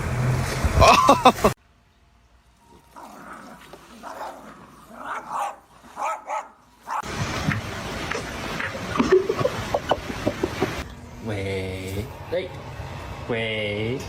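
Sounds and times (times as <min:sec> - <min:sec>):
dog barking: 0:05.0 - 0:07.1.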